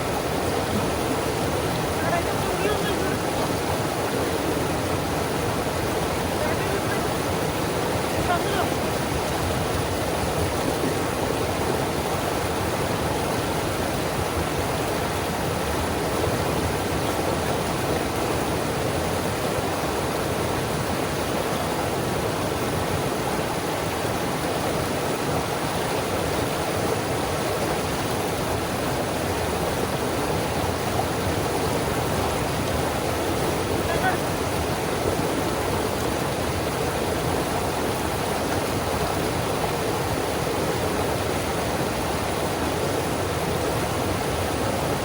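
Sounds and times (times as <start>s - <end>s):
river rapids roaring: 0.0s - 45.0s.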